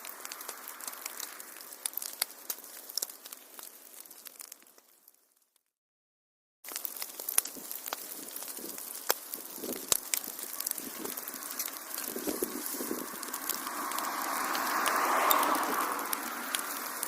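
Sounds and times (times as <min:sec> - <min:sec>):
hissing rush: 0:00.0 - 0:02.6, 0:07.1 - 0:17.0
wood fire crackling: 0:00.0 - 0:05.7, 0:06.6 - 0:17.0.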